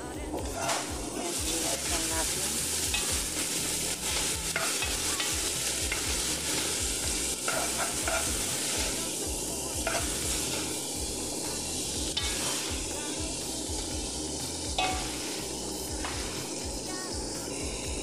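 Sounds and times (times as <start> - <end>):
vegetables sizzling in oil: 0.0 - 18.0
spatula scraping pan: 0.4 - 9.2, 9.8 - 13.2, 14.7 - 16.5.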